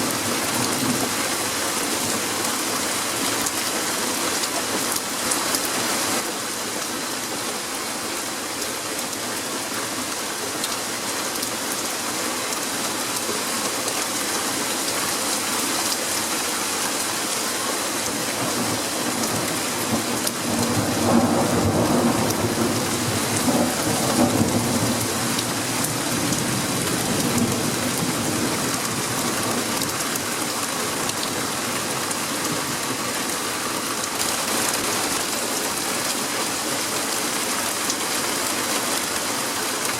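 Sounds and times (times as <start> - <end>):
heavy rain falling: 0.0 - 39.9
thunder rumbling: 18.4 - 29.1.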